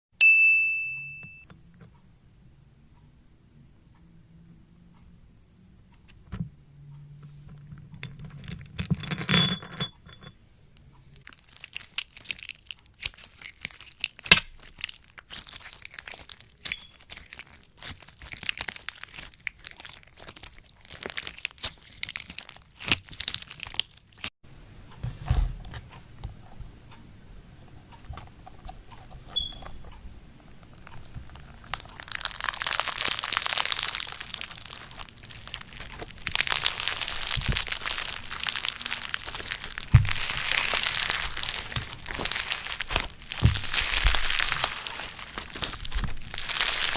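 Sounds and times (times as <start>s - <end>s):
crunchy slime crackling: 11.2s - 24.3s, 27.7s - 46.9s.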